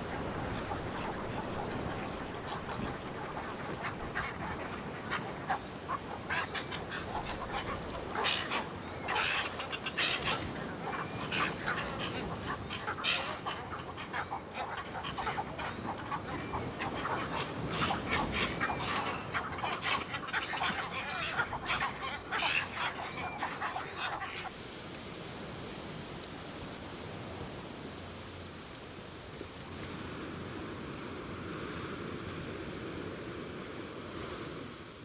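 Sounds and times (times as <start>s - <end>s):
birds chattering calls: 0.1s - 24.5s.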